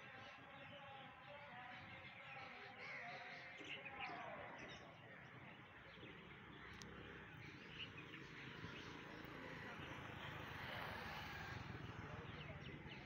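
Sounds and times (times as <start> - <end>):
small birds chirping: 0.0 - 13.0
distant voices: 6.7 - 13.0.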